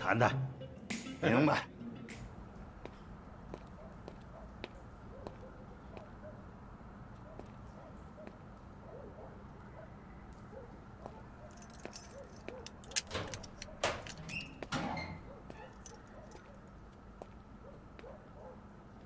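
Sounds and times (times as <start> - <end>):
metallic rattle and jangling: 11.4 - 16.8.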